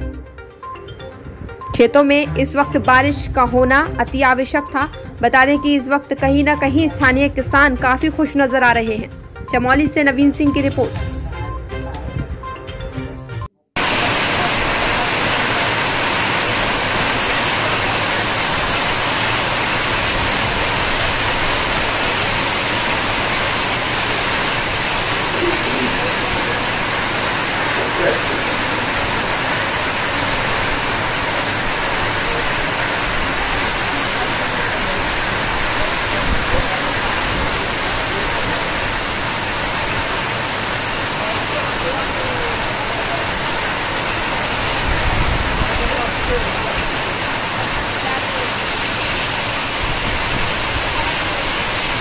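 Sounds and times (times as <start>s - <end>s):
heavy pouring rain: 13.8s - 52.0s.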